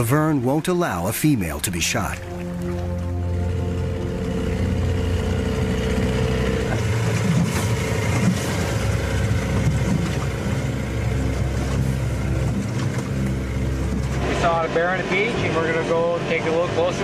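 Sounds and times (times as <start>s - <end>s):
background music tones: 0.0s - 17.0s
motorboat engine running: 0.0s - 17.0s
wind: 0.0s - 17.0s
water wash: 1.4s - 17.0s.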